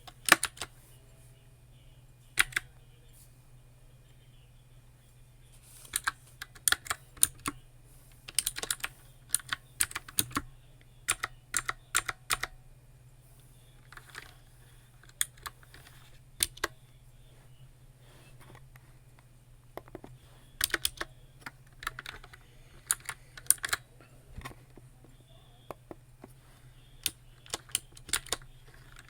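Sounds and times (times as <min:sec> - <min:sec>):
keyboard typing clicks: 0:00.0 - 0:00.7, 0:02.4 - 0:02.7, 0:05.9 - 0:07.6, 0:08.3 - 0:10.5, 0:11.1 - 0:12.6, 0:15.0 - 0:16.8, 0:19.8 - 0:23.8, 0:27.0 - 0:29.0.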